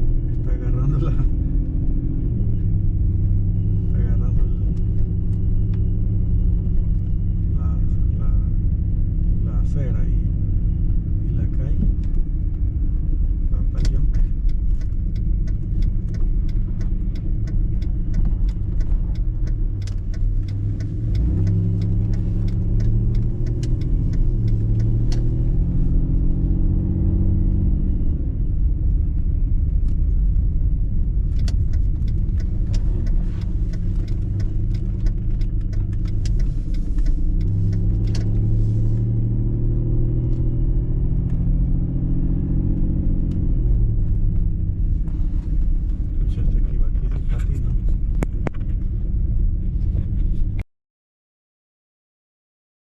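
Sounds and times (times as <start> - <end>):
car engine and road noise: 0.0 - 50.6
rapid sharp clicks and ticks: 13.6 - 25.6, 31.2 - 38.4.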